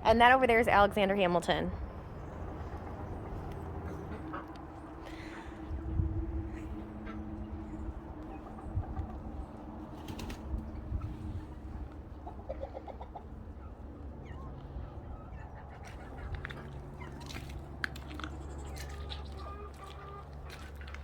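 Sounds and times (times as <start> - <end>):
low rumble: 0.0 - 12.5
chickens clucking: 2.0 - 21.0.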